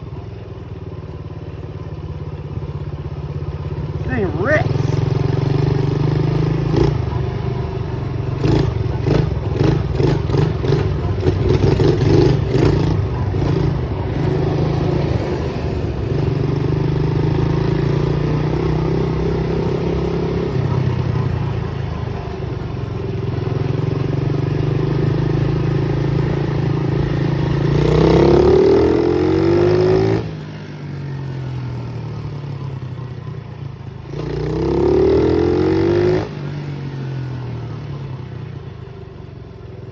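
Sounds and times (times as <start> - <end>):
pit bike engine revving: 8.3 - 21.3.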